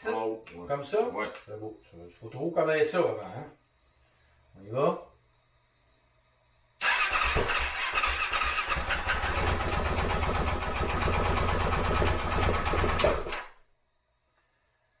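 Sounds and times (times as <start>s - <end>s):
motorcycle engine starting and running: 6.8s - 13.6s.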